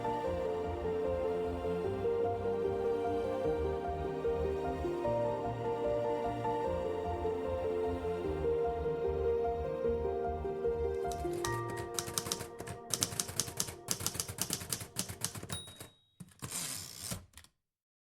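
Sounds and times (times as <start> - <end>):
background music: 0.0 - 15.5
typewriter keys clacking: 11.1 - 17.5.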